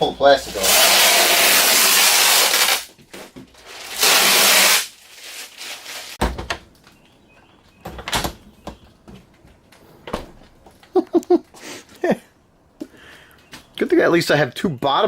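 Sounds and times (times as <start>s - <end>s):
plastic film ripping off: 0.4s - 6.2s.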